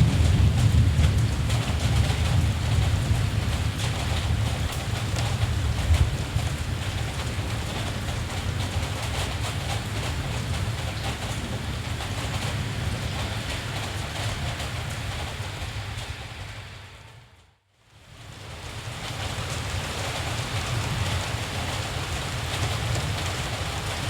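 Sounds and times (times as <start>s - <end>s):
distant thunder rumble: 0.0s - 7.9s
rain hiss: 12.0s - 24.0s.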